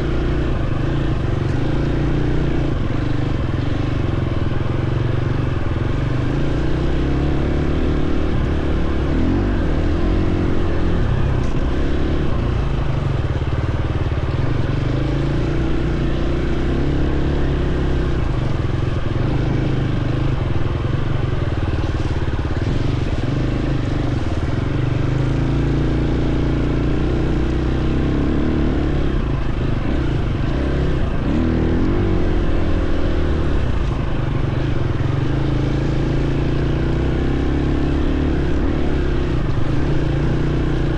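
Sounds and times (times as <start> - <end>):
dirt bike engine revving: 6.2 - 13.5, 21.7 - 40.9.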